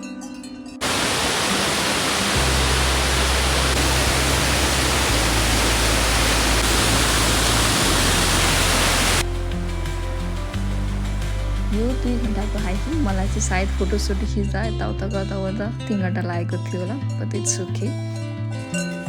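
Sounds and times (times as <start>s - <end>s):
waterfall rushing: 0.8s - 11.7s
background music with low bass: 2.4s - 16.0s.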